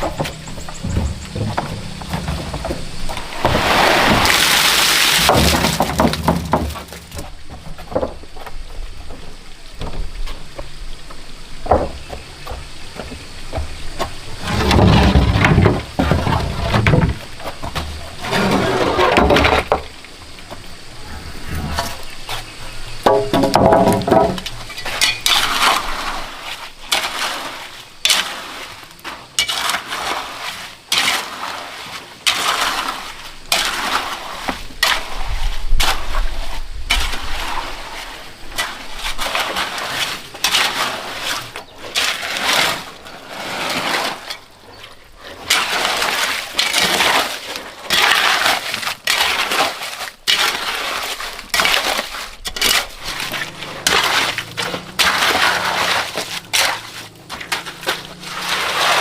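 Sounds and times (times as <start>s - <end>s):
hand tool scraping gravelly material: 14.4s - 19.8s, 21.0s - 59.0s.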